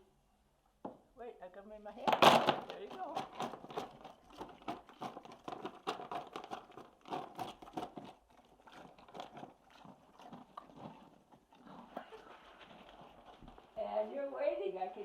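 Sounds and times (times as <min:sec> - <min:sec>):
horse chewing crunchy treats: 0:02.0 - 0:13.9.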